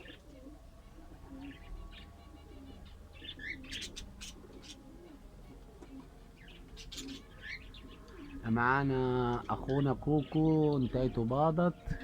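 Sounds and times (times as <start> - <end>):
low cooing: 0.0 - 6.2, 6.8 - 8.5
small birds chirping: 0.0 - 12.0.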